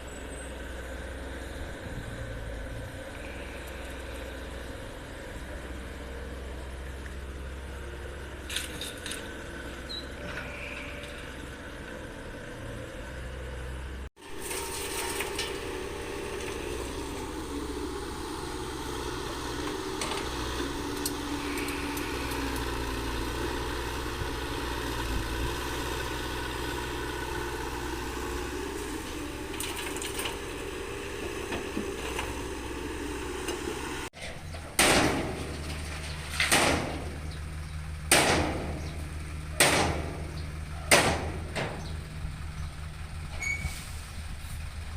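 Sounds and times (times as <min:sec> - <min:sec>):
heavy machinery engine running: 0:00.0 - 0:44.9
loud heavy knocks: 0:38.1 - 0:39.0, 0:39.6 - 0:41.9.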